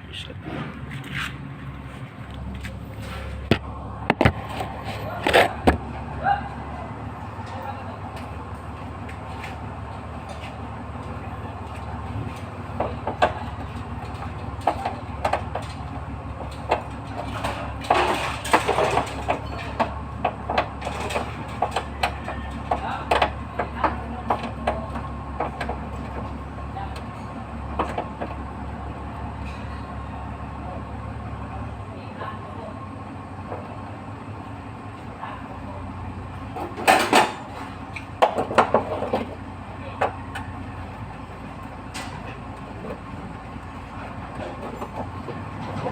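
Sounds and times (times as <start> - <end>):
metal clattering: 12.2 - 23.3.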